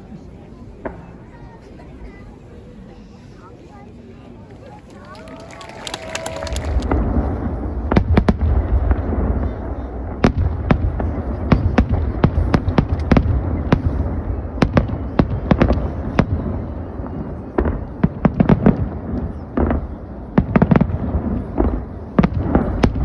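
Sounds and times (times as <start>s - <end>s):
fireworks bursts and crackles: 0.6s - 2.1s, 4.4s - 23.0s
deep fireworks booms: 5.9s - 23.0s.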